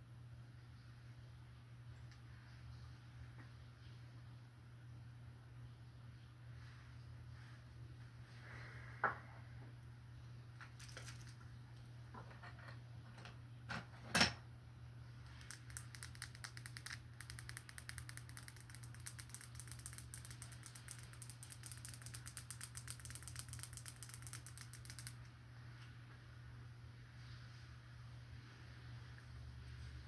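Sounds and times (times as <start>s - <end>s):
low steady hum: 0.0s - 30.0s
fast light tapping: 15.3s - 25.2s
sharp clicks: 15.3s - 25.3s.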